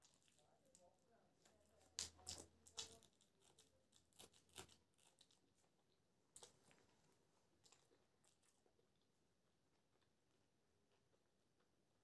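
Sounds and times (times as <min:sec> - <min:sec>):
chilli crunching when bitten: 0:01.6 - 0:06.8, 0:07.6 - 0:09.1.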